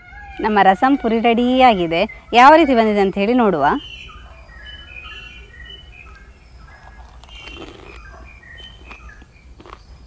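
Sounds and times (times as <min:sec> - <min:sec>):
small birds chirping: 0:00.3 - 0:10.0
crunching and chewing: 0:06.1 - 0:10.0.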